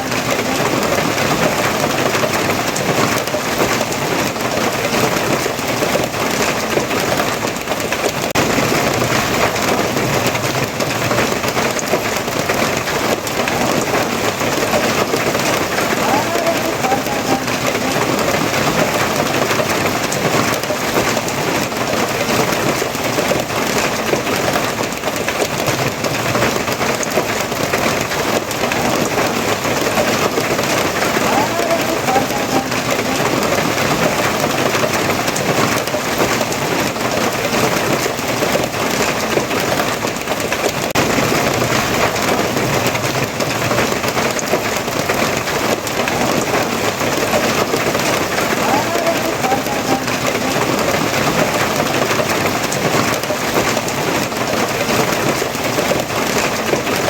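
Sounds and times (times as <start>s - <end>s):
heavy rain splashing: 0.0s - 57.0s.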